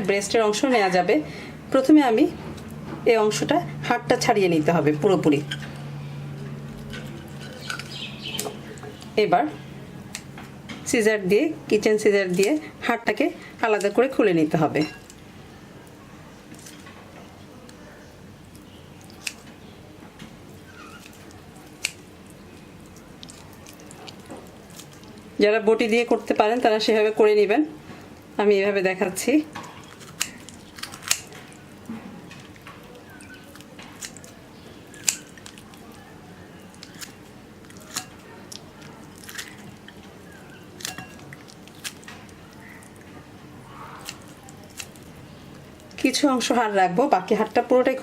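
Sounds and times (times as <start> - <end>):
wet squishing of meat: 17.6 - 26.0, 29.6 - 46.2
scissors snipping: 19.0 - 19.5, 20.8 - 22.1, 30.0 - 31.5, 33.5 - 34.4, 35.0 - 35.8, 44.0 - 45.1
scissors snipping meat: 19.0 - 19.5, 20.7 - 22.1, 29.8 - 31.6, 32.4 - 35.9, 36.7 - 43.0, 43.9 - 45.1.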